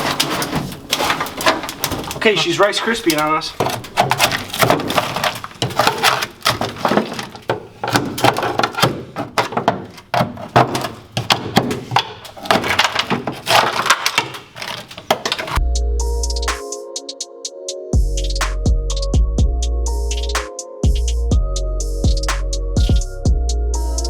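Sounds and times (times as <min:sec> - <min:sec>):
brittle deadener cracking and knocking: 0:00.0 - 0:15.6.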